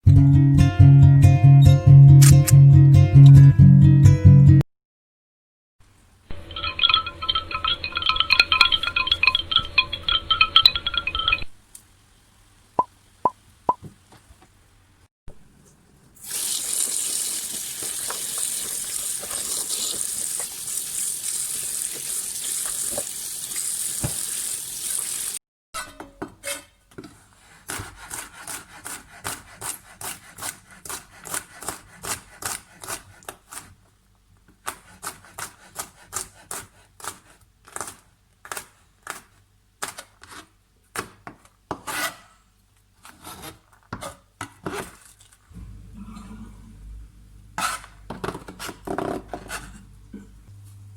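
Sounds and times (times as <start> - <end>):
water running from a tap: 16.2 - 25.4.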